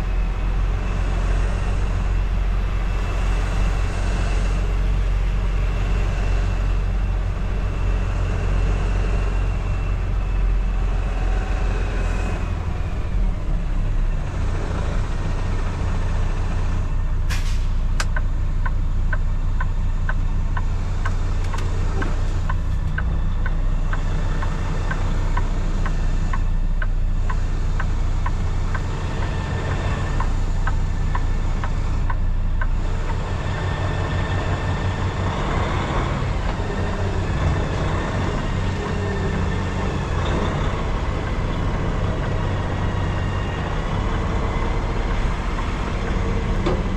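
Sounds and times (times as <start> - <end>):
diesel truck engine running: 0.0 - 46.9
regular short ticking: 18.0 - 33.8.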